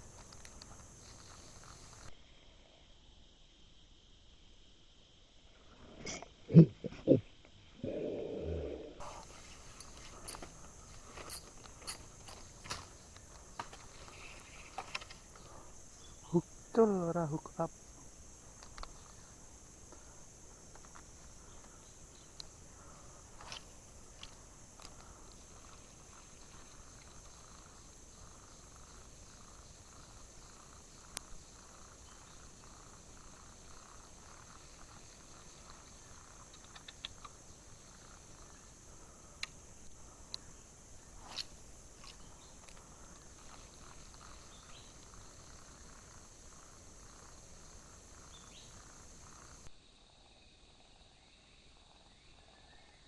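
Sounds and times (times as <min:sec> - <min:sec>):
crickets chirping: 0:00.0 - 0:53.0
low pulsing insect call: 0:00.0 - 0:53.0
sharp clicks: 0:36.4 - 0:37.4.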